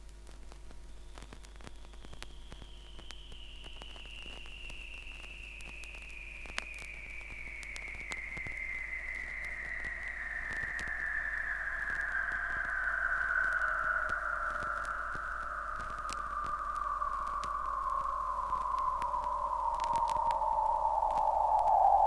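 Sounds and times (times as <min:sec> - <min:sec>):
vinyl surface hiss and crackles: 0:00.0 - 0:22.0
high tone sliding down in pitch: 0:02.4 - 0:22.0
steady low hum: 0:05.8 - 0:22.0.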